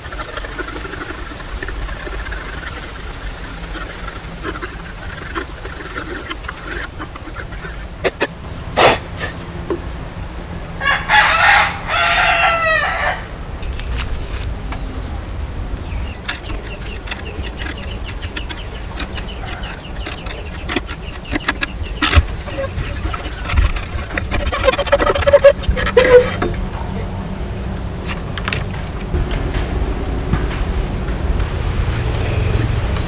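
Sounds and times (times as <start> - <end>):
rooster crowing: 9.1 - 13.5
faint clicking: 15.9 - 26.7.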